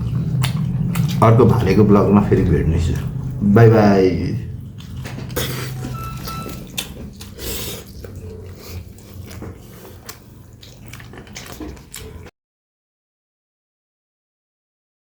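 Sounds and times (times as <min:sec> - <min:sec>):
person chewing food: 0:00.0 - 0:03.4, 0:04.5 - 0:12.3.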